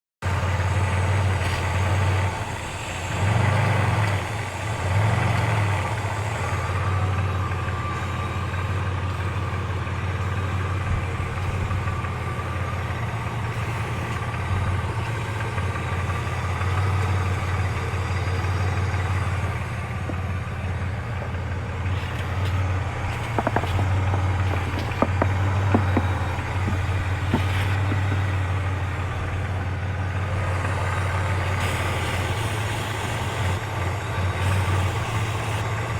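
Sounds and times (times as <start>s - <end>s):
car engine idling: 0.2s - 35.9s.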